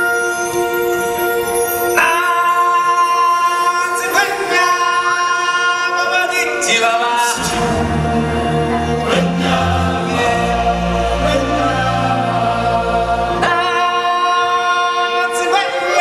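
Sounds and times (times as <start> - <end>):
choir singing long held notes: 4.8 - 16.0
deep bass notes: 7.4 - 13.5.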